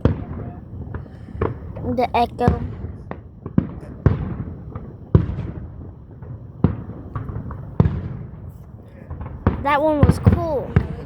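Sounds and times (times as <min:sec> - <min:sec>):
fireworks booming: 0:00.0 - 0:11.0
small firework pops: 0:00.0 - 0:11.0.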